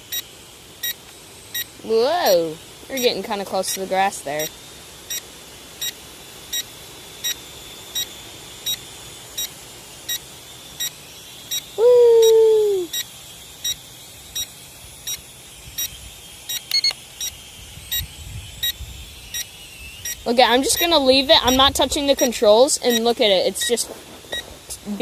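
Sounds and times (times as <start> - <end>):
remote controller beeping: 16.5 - 21.7.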